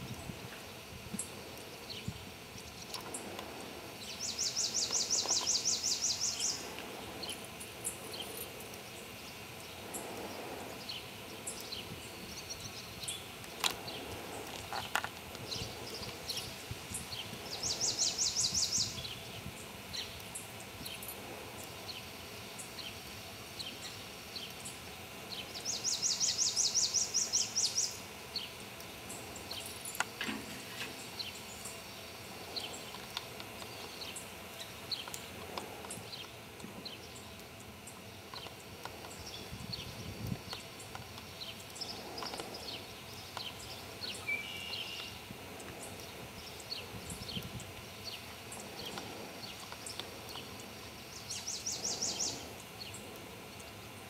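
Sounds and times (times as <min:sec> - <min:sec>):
songbird trilling: 0:04.1 - 0:08.4, 0:41.8 - 0:45.2
faint bird chirps: 0:41.4 - 0:47.5.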